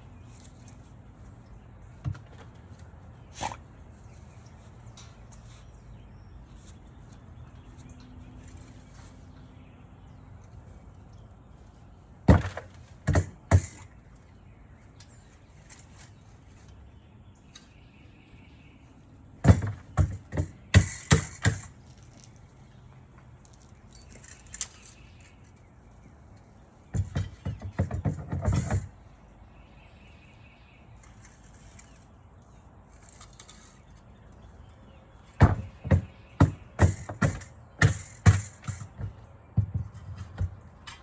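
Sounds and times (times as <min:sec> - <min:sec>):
low steady background noise: 0:00.0 - 0:41.0
sharp knocks and clatters: 0:12.3 - 0:13.8, 0:19.4 - 0:22.6, 0:26.9 - 0:28.9, 0:35.4 - 0:41.0.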